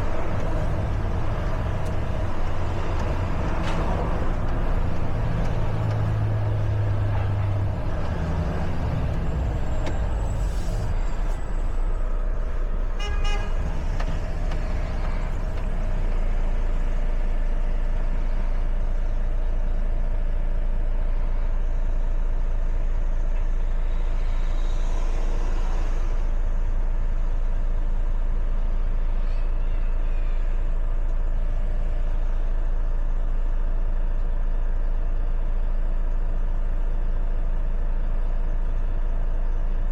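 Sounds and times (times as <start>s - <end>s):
truck diesel engine running: 0.0s - 39.9s
horn toot: 12.9s - 14.1s.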